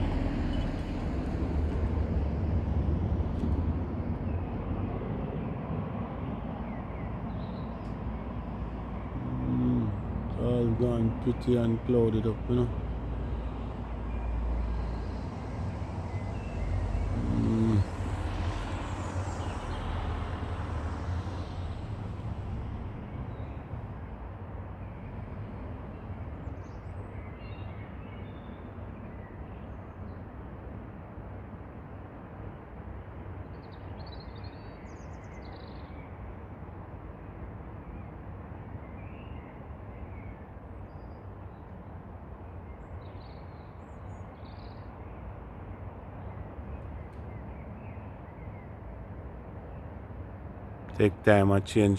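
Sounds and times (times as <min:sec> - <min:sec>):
vehicle passing: 0:00.0 - 0:05.2, 0:08.0 - 0:26.6, 0:50.9 - 0:51.9
distant traffic: 0:00.0 - 0:31.5, 0:41.4 - 0:51.9.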